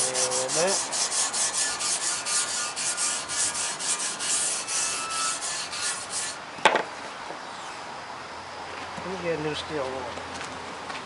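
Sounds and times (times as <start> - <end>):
hand scrubbing rust: 0.0 - 6.4.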